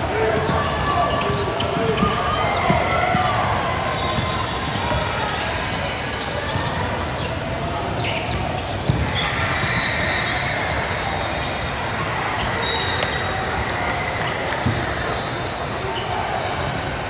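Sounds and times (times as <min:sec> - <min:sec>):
din of players and spectators: 0:00.0 - 0:17.0
sneaker squeaks: 0:00.0 - 0:17.0
basketball bouncing on court: 0:00.3 - 0:09.7.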